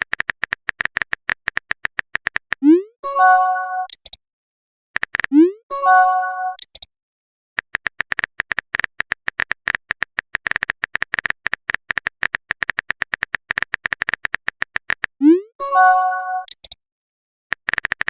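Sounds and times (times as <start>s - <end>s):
keyboard typing clicks: 0.0s - 2.8s, 3.8s - 4.2s, 5.0s - 5.6s, 6.5s - 6.9s, 7.6s - 15.2s, 16.3s - 16.8s, 17.5s - 18.0s.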